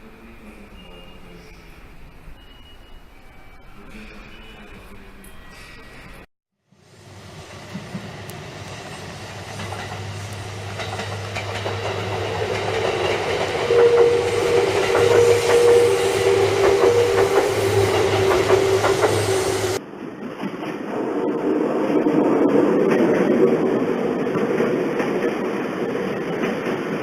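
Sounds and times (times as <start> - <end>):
electric train whine: 0.0 - 27.0
wheels clicking over rail joints: 9.5 - 14.2.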